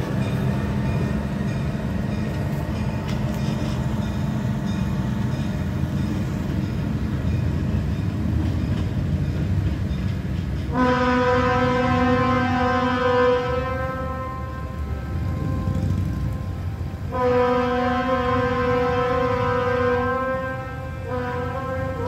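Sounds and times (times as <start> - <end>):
diesel engines rumbling: 0.0 - 22.0
train horn blast: 10.7 - 22.0.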